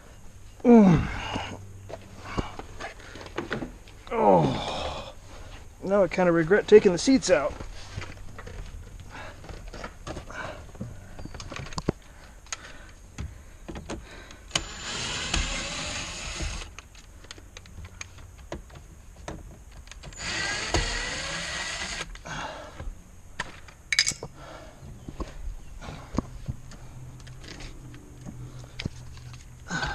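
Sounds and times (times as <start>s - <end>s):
small electric power tool running: 14.5s - 16.7s, 20.2s - 22.1s
tools and parts clicking: 23.4s - 24.3s.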